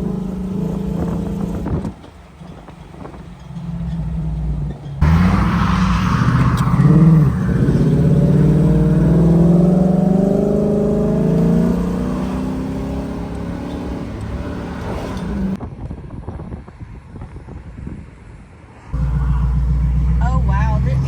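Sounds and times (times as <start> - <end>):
vehicle engine revving: 0.0 - 15.6, 19.0 - 21.0
rush of noise: 5.0 - 9.5.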